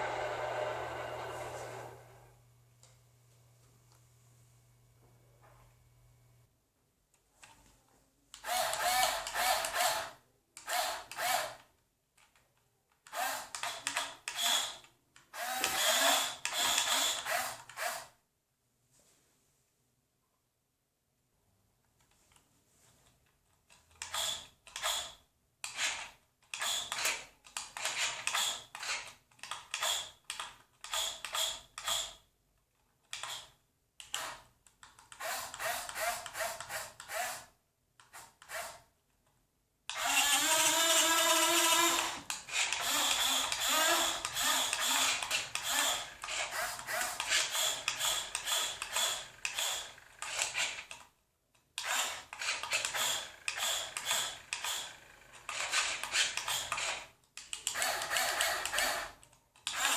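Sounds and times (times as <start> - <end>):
electric motor whirring in bursts: 40.0 - 50.0.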